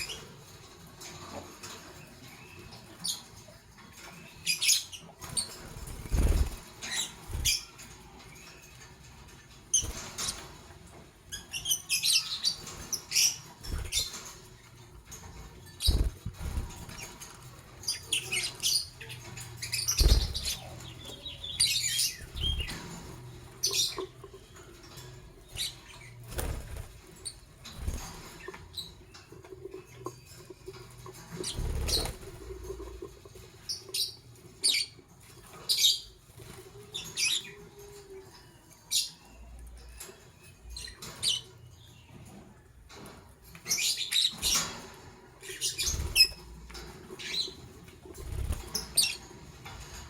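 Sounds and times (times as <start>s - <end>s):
lovebirds chirping: 1.6s - 10.5s, 11.3s - 36.2s
wings fluttering: 4.9s - 8.5s, 12.2s - 35.7s, 44.3s - 50.0s.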